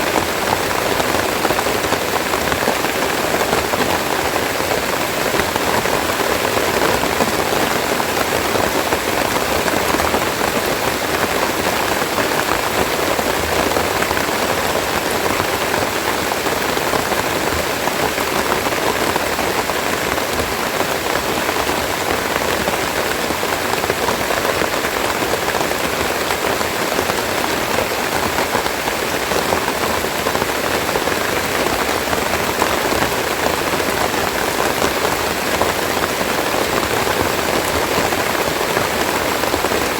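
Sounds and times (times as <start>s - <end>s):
rain pattering on leaves: 0.0s - 39.9s.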